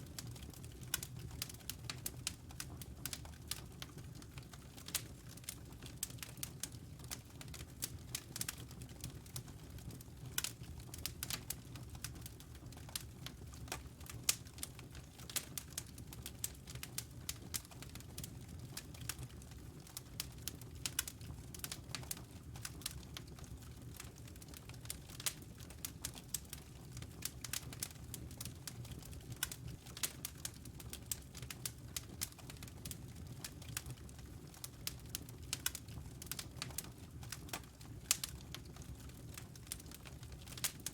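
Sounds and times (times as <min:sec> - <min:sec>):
low rumble of flames: 0:00.0 - 0:40.9
logs crackling and snapping: 0:08.1 - 0:08.6, 0:19.9 - 0:40.9.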